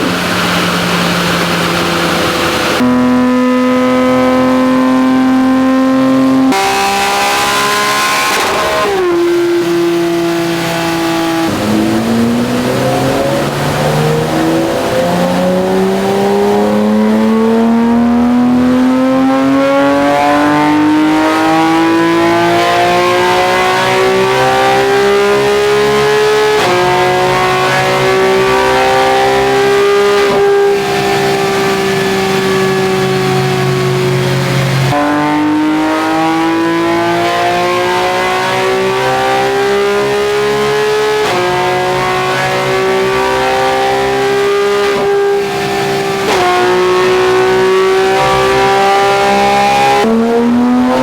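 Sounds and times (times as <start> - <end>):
car engine at full throttle: 0.0 - 51.0.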